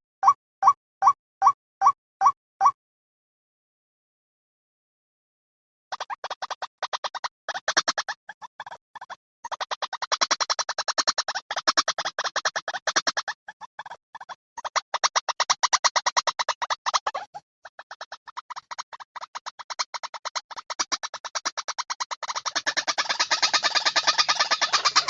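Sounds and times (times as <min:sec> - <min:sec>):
bird harsh repeated calls: 0:05.9 - 0:25.0.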